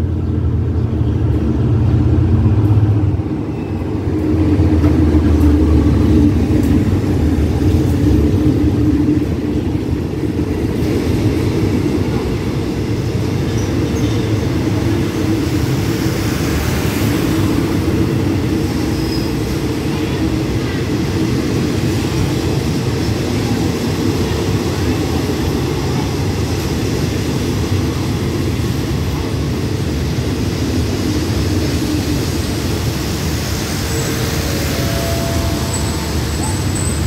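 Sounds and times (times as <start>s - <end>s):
locomotive engine rumble: 0.0s - 23.8s, 24.5s - 37.0s
train wheels on rails: 0.0s - 37.0s.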